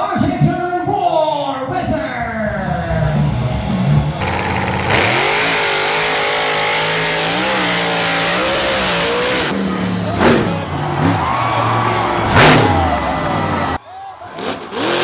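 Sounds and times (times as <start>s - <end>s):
truck engine at high revs: 4.1s - 15.0s.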